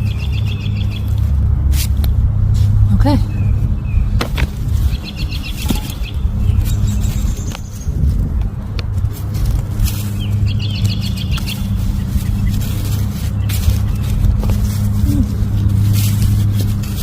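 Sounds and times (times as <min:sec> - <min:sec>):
bird chirps: 0:00.0 - 0:01.3, 0:03.2 - 0:04.2, 0:04.8 - 0:08.0, 0:10.0 - 0:14.3
low motor hum: 0:00.0 - 0:17.0.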